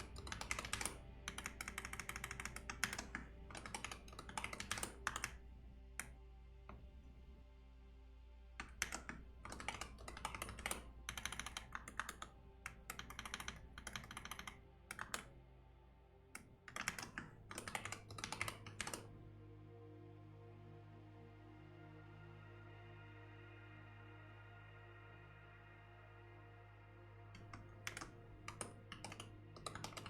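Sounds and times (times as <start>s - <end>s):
typing on computer keyboard: 0.0s - 5.4s, 8.6s - 15.3s, 16.4s - 19.1s, 27.4s - 30.0s
soft background music: 0.0s - 30.0s.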